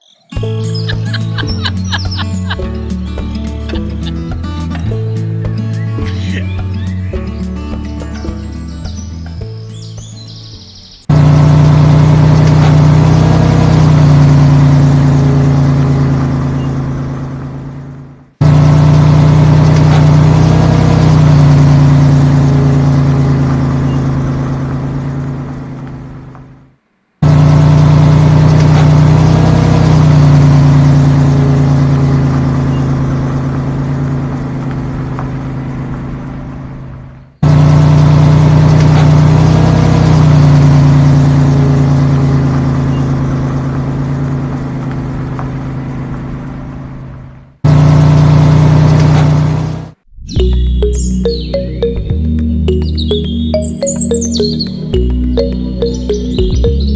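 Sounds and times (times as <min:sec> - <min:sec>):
vehicle engine revving: 0:00.4 - 0:09.5, 0:11.0 - 0:56.9.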